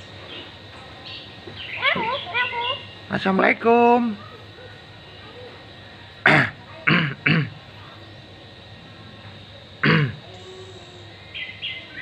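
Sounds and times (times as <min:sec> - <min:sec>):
bird coughing: 0:06.2 - 0:07.6, 0:09.8 - 0:10.2.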